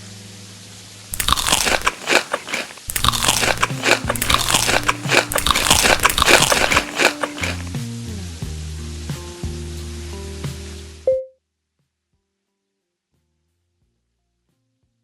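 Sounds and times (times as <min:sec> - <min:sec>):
crunchy biting and chewing: 0:01.1 - 0:07.8.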